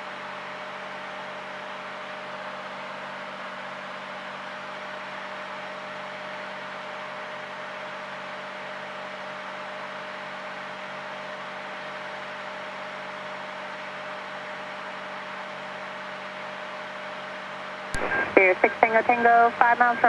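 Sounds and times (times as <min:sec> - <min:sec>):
airplane cabin drone: 0:18.0 - 0:20.0.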